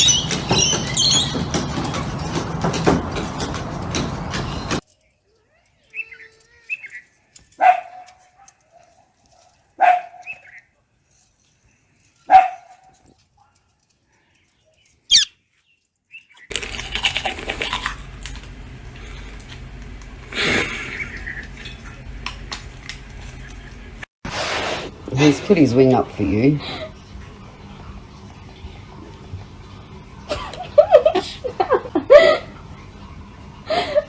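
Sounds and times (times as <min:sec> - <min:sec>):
dog barks: 0:07.6 - 0:10.6, 0:12.2 - 0:13.6.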